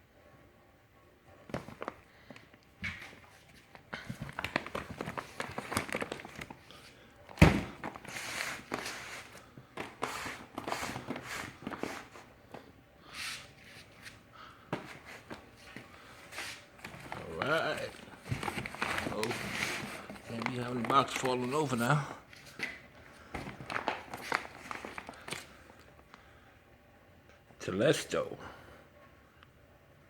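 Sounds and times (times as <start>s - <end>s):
box set down thump: 7.4s - 8.0s
cardboard rustling and scraping: 7.4s - 12.6s, 13.2s - 22.8s, 23.4s - 25.5s.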